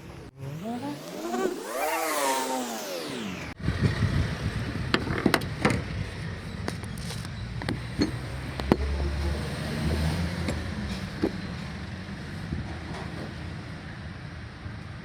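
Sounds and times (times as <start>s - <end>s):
car engine revving and rumbling: 0.0s - 15.0s
sharp knocks and clicks: 7.6s - 8.9s.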